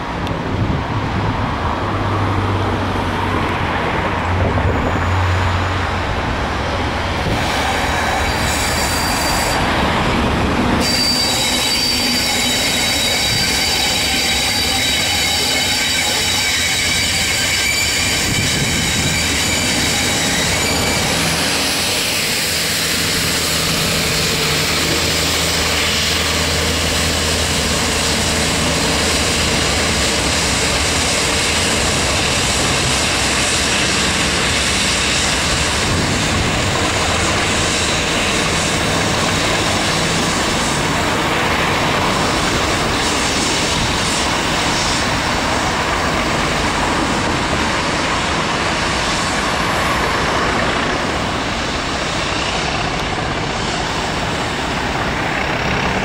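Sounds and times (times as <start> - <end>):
train wheel rumble: 0.0 - 56.0
high wheel squeal: 4.6 - 6.1, 7.2 - 56.0
diesel engine drone: 18.3 - 56.0.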